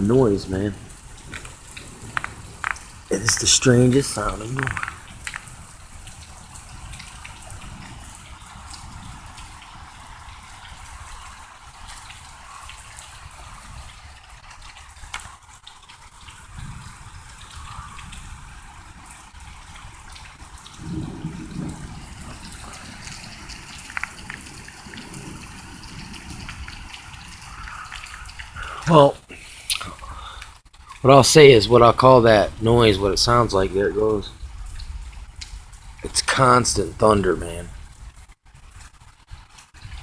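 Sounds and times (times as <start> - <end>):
distant rolling thunder: 0.0 - 11.4, 16.6 - 28.8, 31.4 - 38.2
rain dripping: 0.0 - 40.0
trickling water: 0.0 - 40.0.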